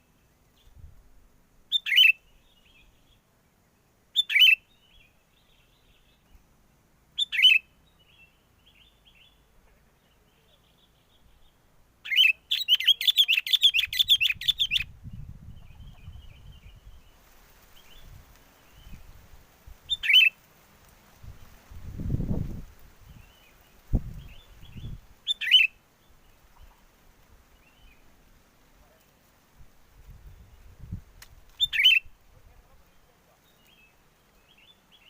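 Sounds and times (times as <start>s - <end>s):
wind rumble on microphone: 0.7s - 1.2s, 13.9s - 17.2s, 17.8s - 20.0s, 21.2s - 25.2s, 29.6s - 32.8s
bulbuls calling and chattering: 12.0s - 14.8s, 31.5s - 35.0s.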